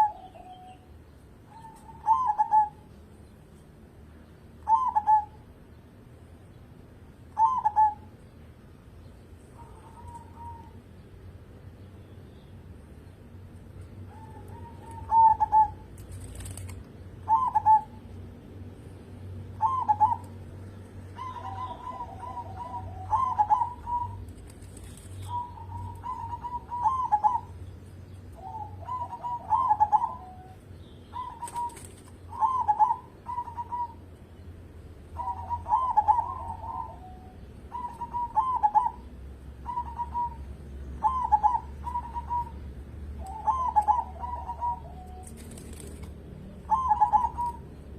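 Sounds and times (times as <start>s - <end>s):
dove cooing: 0.0s - 0.8s, 1.5s - 2.9s, 4.6s - 5.4s, 7.4s - 8.1s, 9.6s - 10.8s, 14.0s - 18.1s, 19.5s - 20.4s, 21.1s - 27.6s, 28.4s - 34.1s, 35.2s - 47.9s.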